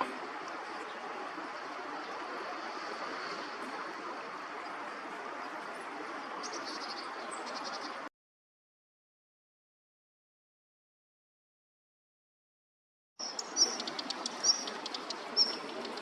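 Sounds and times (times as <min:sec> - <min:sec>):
river flowing: 0:00.0 - 0:08.1, 0:13.3 - 0:16.0
small bird chirping: 0:13.2 - 0:16.0.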